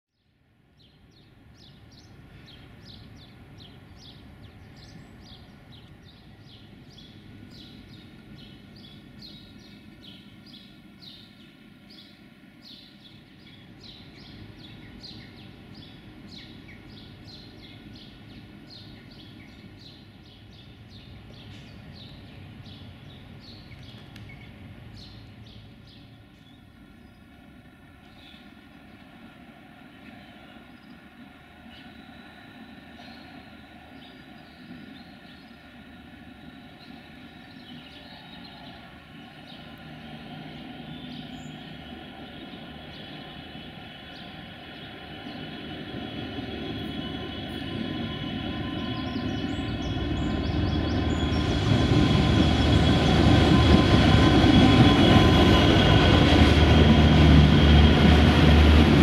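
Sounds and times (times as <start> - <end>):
small birds chirping: 0.2 - 27.4, 28.0 - 29.1, 29.8 - 53.6
low background rumble: 38.7 - 59.0.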